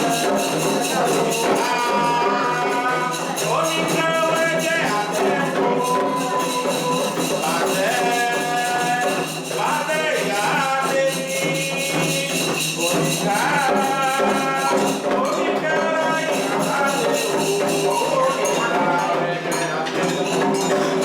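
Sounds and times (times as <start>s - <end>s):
chant singing: 0.0s - 21.0s
hand percussion and rattles: 0.0s - 21.0s.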